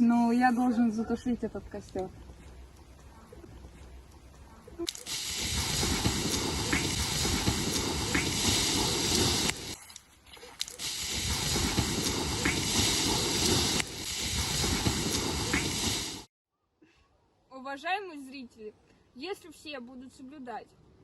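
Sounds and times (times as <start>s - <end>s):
hissing spray on campfire: 4.8s - 10.0s, 10.6s - 16.3s.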